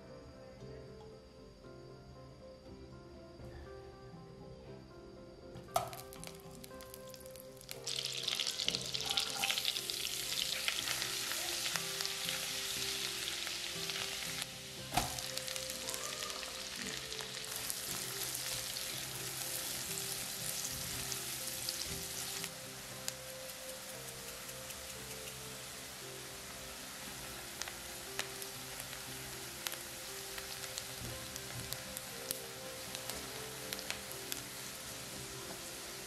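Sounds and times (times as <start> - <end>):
garlic sizzling in butter: 5.8 - 36.0
knock against the pan: 14.9 - 15.2.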